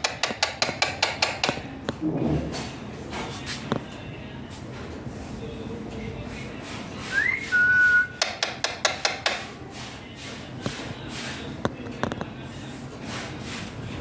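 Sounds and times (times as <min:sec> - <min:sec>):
parrot whistling: 0:07.1 - 0:08.3.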